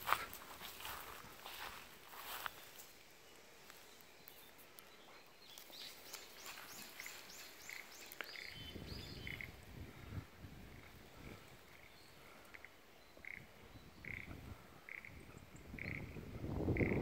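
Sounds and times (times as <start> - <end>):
bird calling: 3.7 - 9.6, 10.8 - 17.0.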